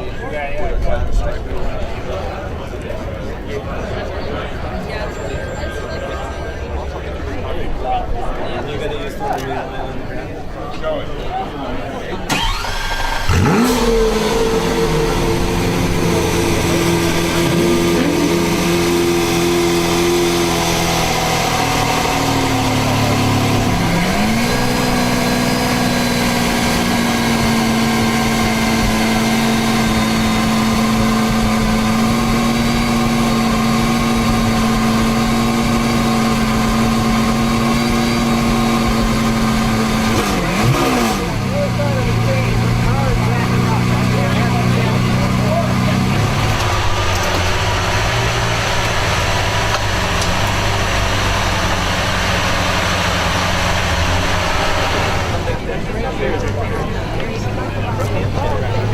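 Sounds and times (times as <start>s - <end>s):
car engine idling: 12.3s - 58.9s.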